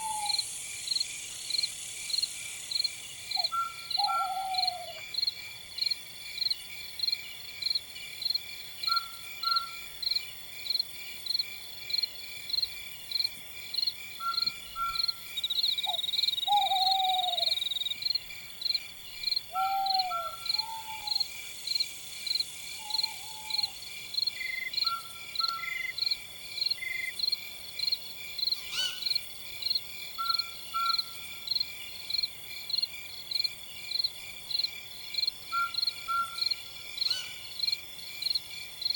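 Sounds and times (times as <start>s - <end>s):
night insects trilling: 0.0s - 38.9s.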